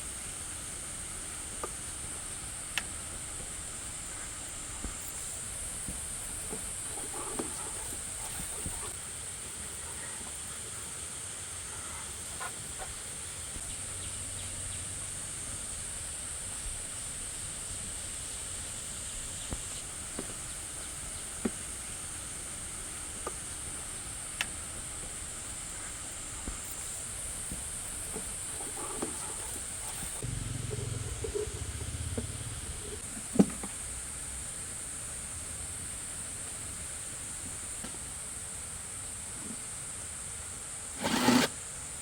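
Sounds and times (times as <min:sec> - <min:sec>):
high-pitched hiss: 0:00.0 - 0:42.0.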